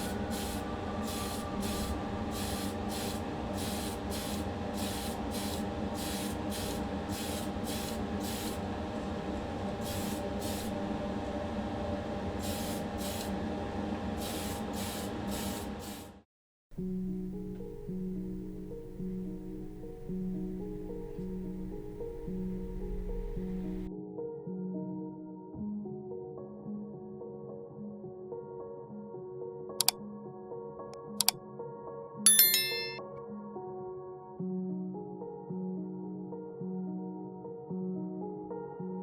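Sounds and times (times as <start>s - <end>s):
paint spraying hiss: 0.0s - 8.6s, 9.8s - 10.7s, 12.4s - 13.3s, 14.2s - 16.1s.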